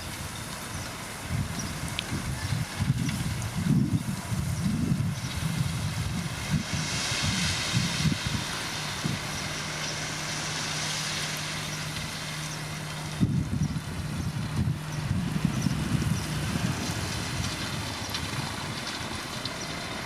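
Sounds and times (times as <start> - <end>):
heavy machinery diesel engine: 0.0 - 20.0
hiss: 5.2 - 12.7.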